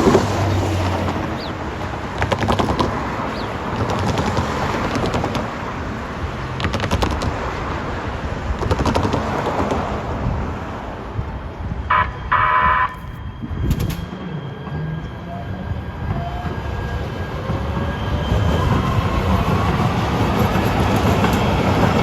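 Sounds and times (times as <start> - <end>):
train rumbling past: 0.0 - 22.0
train horn blasts: 11.9 - 13.2.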